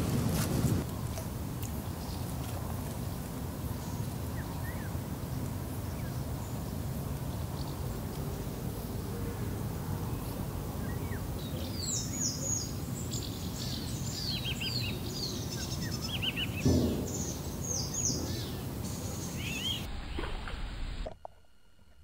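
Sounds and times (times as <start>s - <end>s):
birds singing: 1.8s - 20.3s
loud thump: 16.6s - 18.6s.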